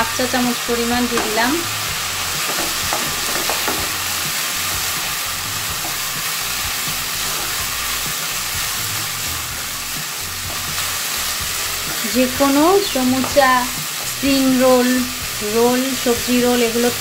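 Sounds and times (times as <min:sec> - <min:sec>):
food sizzling in a pan: 0:00.0 - 0:17.0
spatula knocking against pan: 0:02.5 - 0:04.0.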